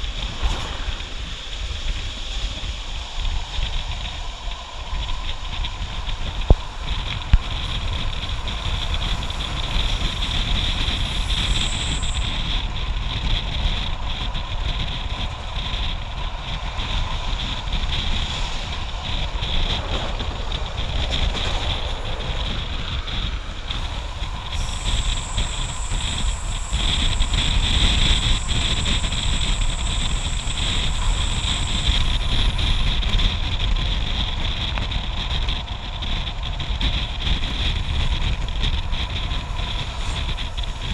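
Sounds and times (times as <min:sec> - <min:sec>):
thin high whine: 0:00.0 - 0:40.9
train wheels rumbling on rails: 0:00.0 - 0:40.9
wind buffeting microphone: 0:00.0 - 0:40.9.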